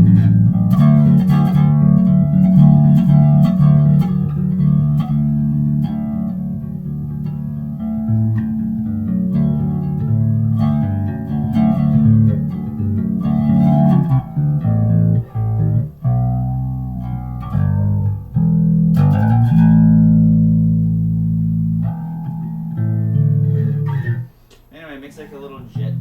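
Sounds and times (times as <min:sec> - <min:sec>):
electric bass with flanger: 0:00.0 - 0:24.3, 0:25.7 - 0:26.0.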